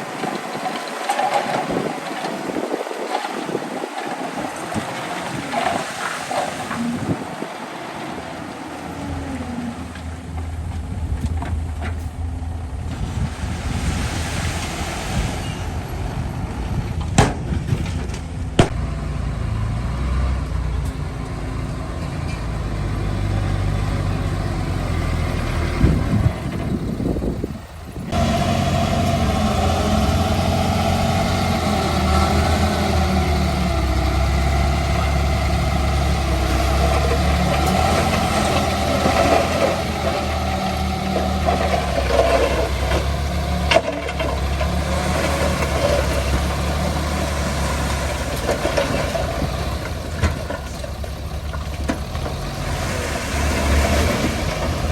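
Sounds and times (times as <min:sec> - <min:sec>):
heavy machinery diesel engine: 0:00.0 - 0:54.9.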